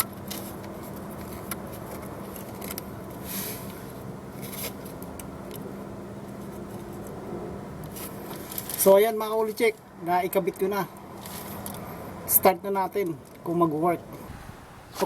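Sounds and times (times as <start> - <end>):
small clicks and scrapes: 0.0 - 3.8, 7.8 - 8.9, 11.2 - 11.9
steady low hum: 0.0 - 12.3.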